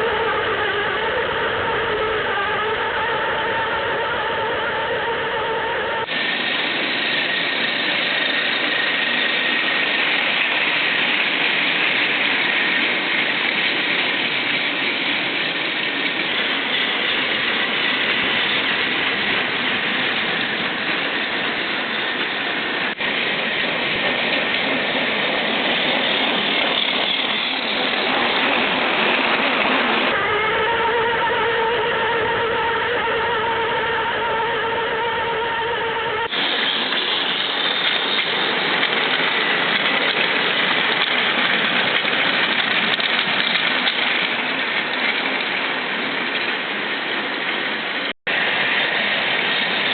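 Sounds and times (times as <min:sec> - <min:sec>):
wheels rattling on plastic track: 0:36.3 - 0:47.6.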